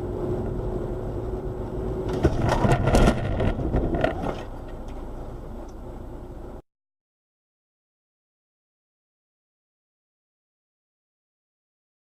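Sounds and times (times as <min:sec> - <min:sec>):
rough engine noise and clatter: 0:00.0 - 0:06.6.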